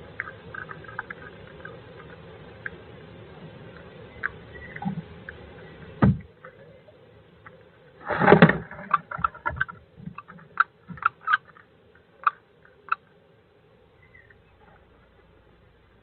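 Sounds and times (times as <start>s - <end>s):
birds scuffling in nest box: 7.9s - 13.0s.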